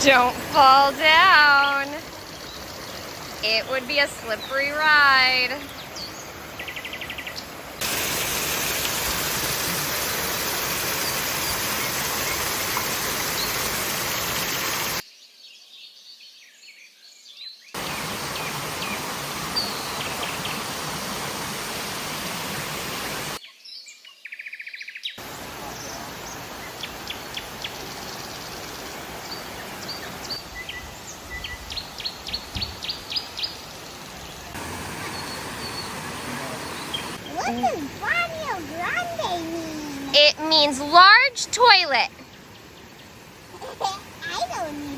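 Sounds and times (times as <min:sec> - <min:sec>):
birds chirping: 0:00.0 - 0:16.8, 0:17.4 - 0:44.9
steady rushing noise: 0:34.5 - 0:39.4.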